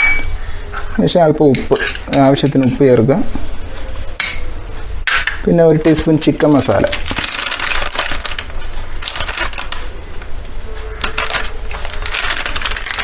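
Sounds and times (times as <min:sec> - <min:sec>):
teaspoon clicking and scraping: 0:01.5 - 0:02.8, 0:06.9 - 0:13.0
spice containers being handled: 0:05.9 - 0:13.0.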